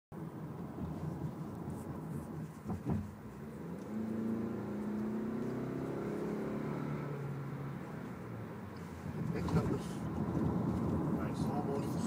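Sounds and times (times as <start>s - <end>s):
car engine accelerating: 3.0s - 12.0s.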